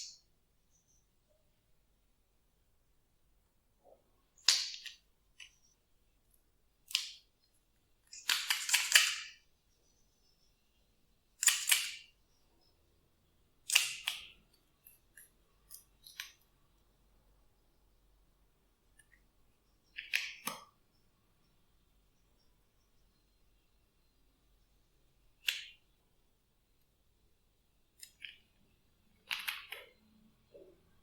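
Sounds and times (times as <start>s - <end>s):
small clicks: 28.0s - 30.6s.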